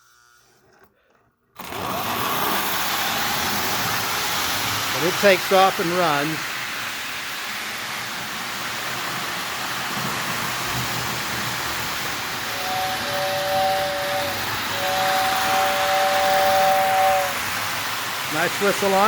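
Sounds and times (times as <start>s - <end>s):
toy train rolling on track: 1.6s - 19.0s
two-note train whistle: 12.4s - 17.6s.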